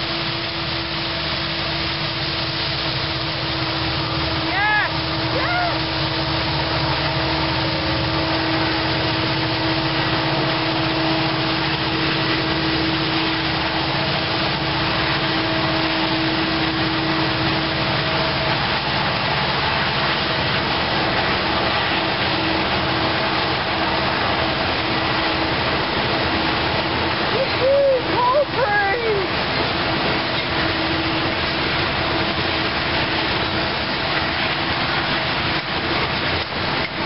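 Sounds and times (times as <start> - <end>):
steady drone: 0.0 - 37.0
train wheels rumbling on rail: 0.0 - 37.0.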